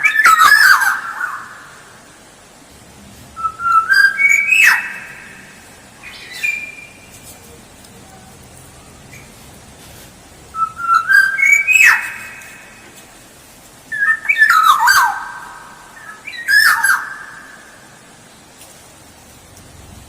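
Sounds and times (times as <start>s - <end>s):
oriole singing fluty whistles: 3.4s - 5.3s, 10.6s - 12.4s.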